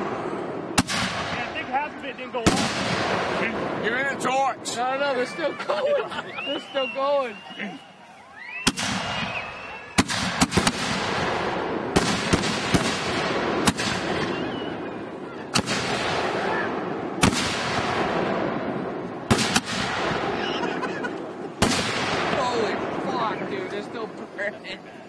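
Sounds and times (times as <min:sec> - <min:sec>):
firework shell bangs: 0:10.0 - 0:14.4.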